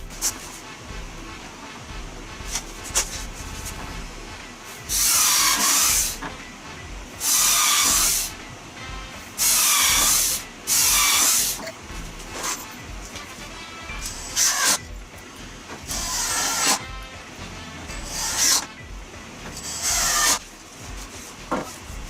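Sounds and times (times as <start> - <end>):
power tool bursts: 4.8 - 6.3, 7.2 - 8.4, 9.4 - 11.7, 14.0 - 14.9, 15.9 - 16.9, 18.0 - 18.7, 19.6 - 20.4.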